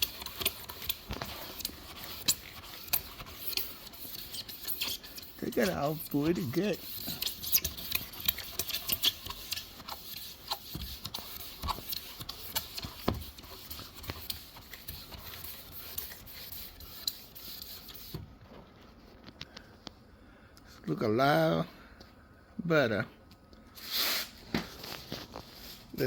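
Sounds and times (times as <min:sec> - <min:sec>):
hand scraping plastic lens: 0:00.0 - 0:18.2.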